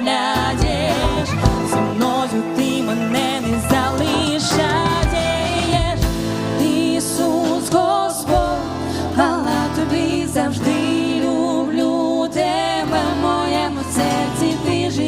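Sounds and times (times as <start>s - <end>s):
person singing with vibrato: 0.0s - 15.0s
band playing chords and bass: 0.3s - 11.4s.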